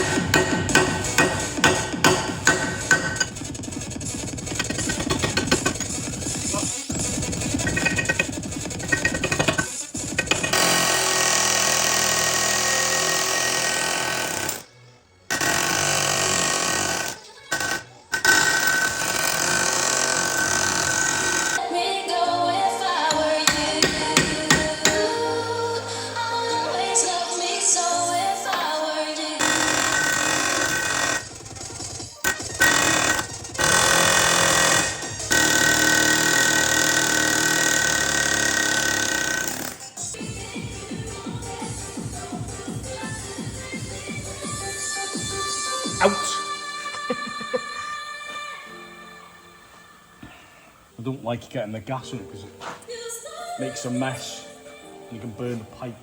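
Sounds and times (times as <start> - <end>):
hammering power tool: 0.0 - 14.7, 15.3 - 21.6, 23.0 - 25.2, 29.4 - 40.2.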